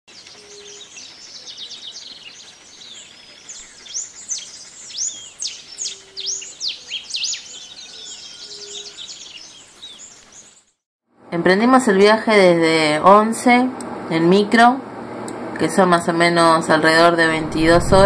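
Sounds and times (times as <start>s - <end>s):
birds chirping and whistling: 0.4s - 10.7s
faint low steady note: 17.3s - 18.0s.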